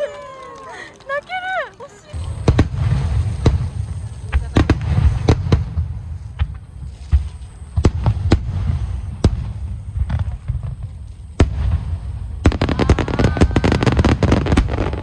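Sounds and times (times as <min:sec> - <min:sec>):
fireworks bursting: 0:00.0 - 0:15.0
low rumble of booms: 0:02.2 - 0:15.0.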